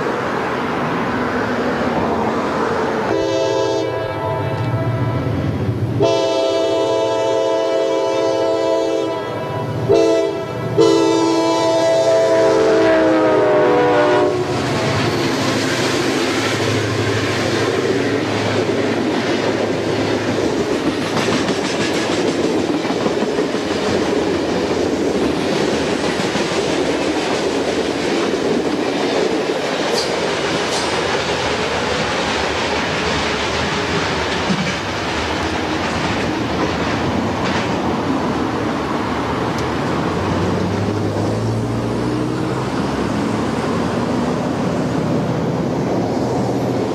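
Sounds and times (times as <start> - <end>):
train horn: 3.1 - 15.4
train wheels clickety-clack: 14.0 - 46.9.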